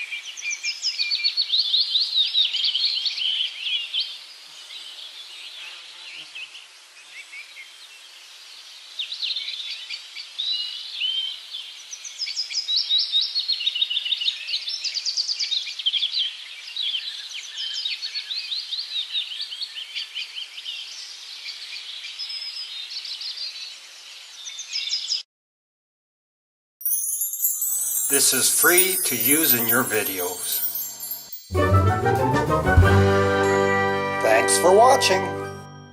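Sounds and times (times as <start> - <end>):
birds chirping and singing: 27.3 - 31.5.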